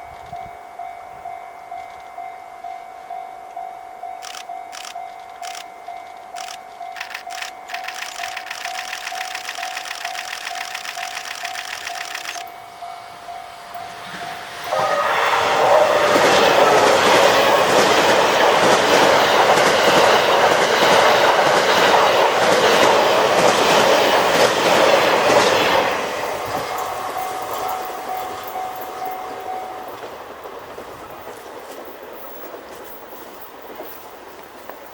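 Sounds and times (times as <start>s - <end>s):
train wheels clattering over rails: 15.0s - 34.9s.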